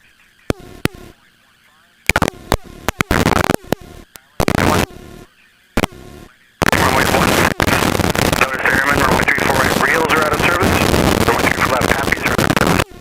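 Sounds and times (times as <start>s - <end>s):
radio clicks and static bursts: 0.0s - 13.0s
steady rush of static: 0.0s - 13.0s.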